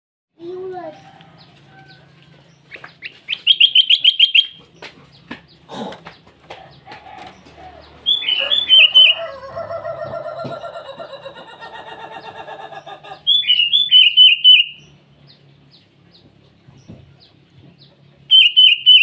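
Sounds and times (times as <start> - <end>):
bird pulsing chatter: 1.8 - 16.4
bulbul calling sharp notes: 2.7 - 4.6, 8.0 - 9.4
bird warbling phrases: 5.6 - 14.8.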